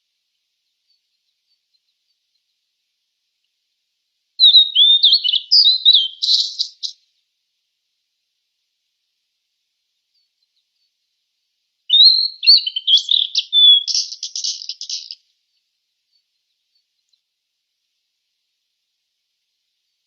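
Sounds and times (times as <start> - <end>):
songbird singing: 0.0 - 3.6, 4.4 - 7.3, 9.8 - 11.1, 11.9 - 18.1.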